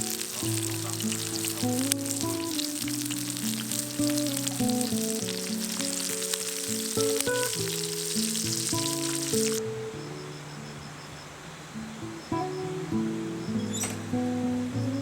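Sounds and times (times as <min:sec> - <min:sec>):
food sizzling in a pan: 0:00.0 - 0:09.6
acoustic guitar music: 0:00.0 - 0:15.0.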